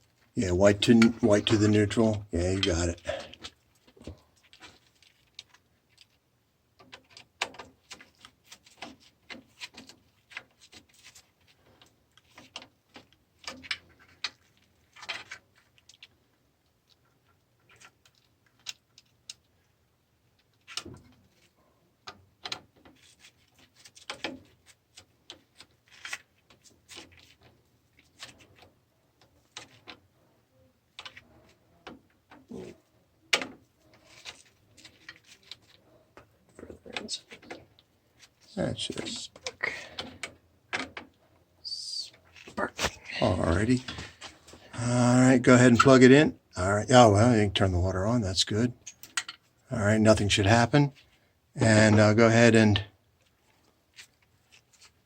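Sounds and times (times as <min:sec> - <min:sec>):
small clicks taps and rattles: 0:02.6 - 0:19.7, 0:20.3 - 0:30.2, 0:48.8 - 0:49.6.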